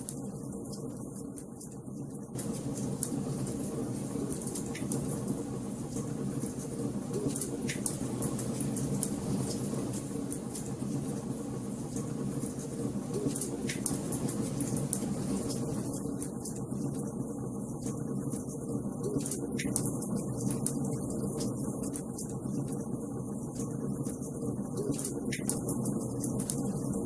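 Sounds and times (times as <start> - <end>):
wood fire crackling: 2.3 - 17.1.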